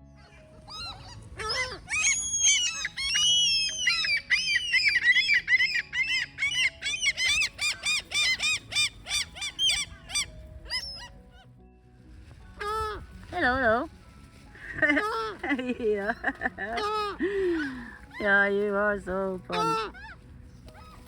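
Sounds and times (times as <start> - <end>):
gull calling: 0.3 - 11.2, 14.8 - 18.7, 19.4 - 21.0.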